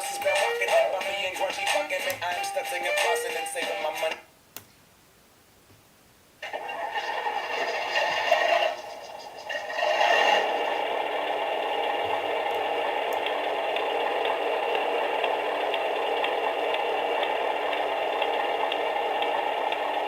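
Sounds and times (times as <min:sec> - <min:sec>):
truck engine running with rattle: 0:08.8 - 0:20.0.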